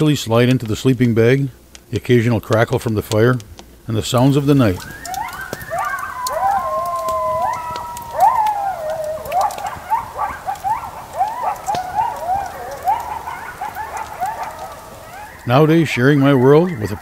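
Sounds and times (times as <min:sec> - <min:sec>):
campfire crackling: 0:00.0 - 0:17.0
coyotes howling and yipping: 0:04.2 - 0:17.0.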